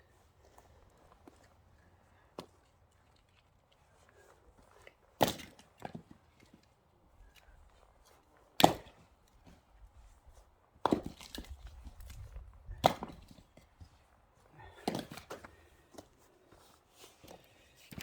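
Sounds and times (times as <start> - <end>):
axe splitting firewood: 5.2 - 6.2, 8.6 - 9.1, 10.8 - 13.7, 14.7 - 15.5.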